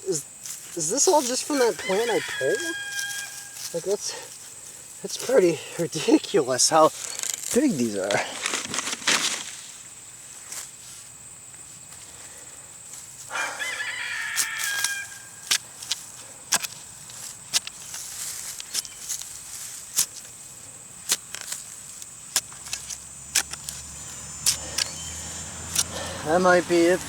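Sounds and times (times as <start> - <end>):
rooster crowing: 1.5 - 3.8, 13.3 - 15.5.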